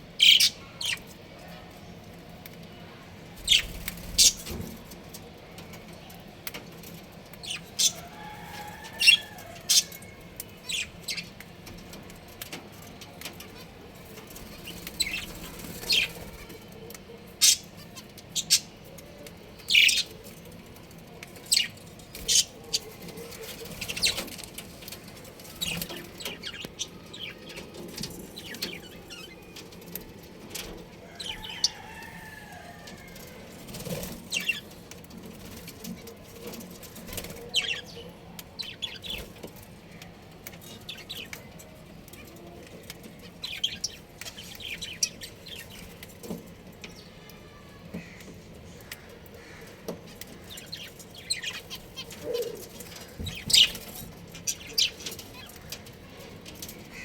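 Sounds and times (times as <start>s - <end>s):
budgerigars chirping: 0.2s - 1.0s.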